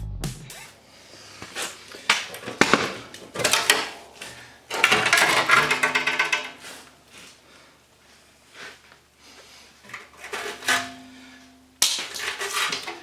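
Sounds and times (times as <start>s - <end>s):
metal rattling scrape: 9.9s - 11.4s, 12.1s - 13.0s.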